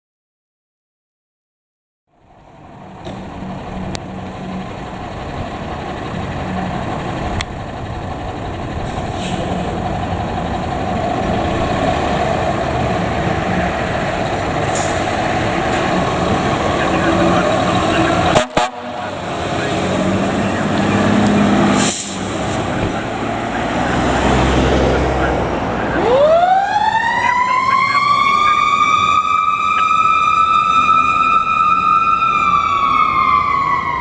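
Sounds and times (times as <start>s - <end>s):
fire engine diesel rumbling: 2.1s - 34.0s
air hisses: 21.7s - 22.6s.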